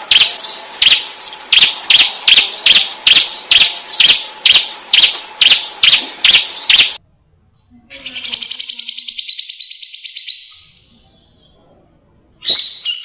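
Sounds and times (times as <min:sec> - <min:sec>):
sharp repeated chirps: 0:00.0 - 0:07.0
continuous high buzz: 0:00.0 - 0:07.1.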